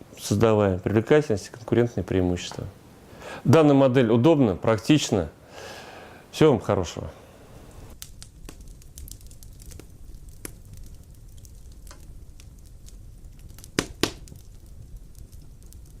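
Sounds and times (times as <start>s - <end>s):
fireplace flame rumbling: 0.0s - 16.0s
sizzling clicks: 7.7s - 16.0s.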